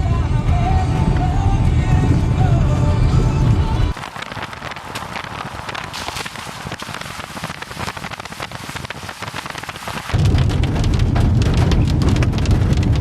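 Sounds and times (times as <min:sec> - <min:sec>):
low rumble: 0:00.0 - 0:04.0, 0:10.1 - 0:13.0
rain pattering: 0:03.9 - 0:13.0.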